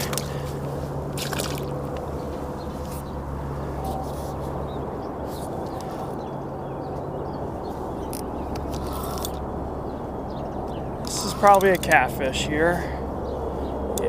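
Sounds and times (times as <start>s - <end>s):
low constant hum: 0.0s - 14.0s
creek water running: 1.0s - 2.1s.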